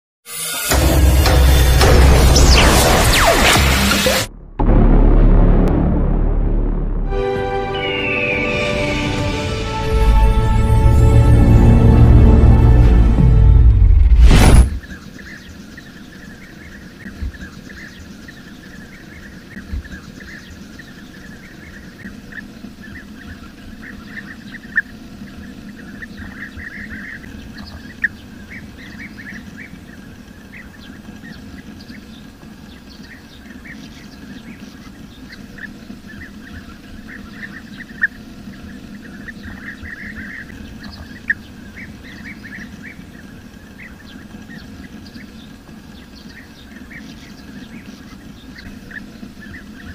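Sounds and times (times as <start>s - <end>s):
birds chirping: 7.2s - 11.9s, 14.7s - 49.9s.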